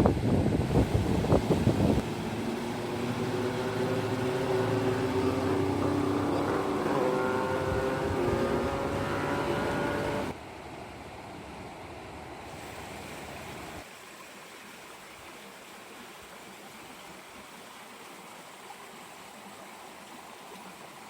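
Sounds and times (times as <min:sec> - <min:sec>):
rushing water: 0:00.0 - 0:21.0
motor humming: 0:00.6 - 0:10.4.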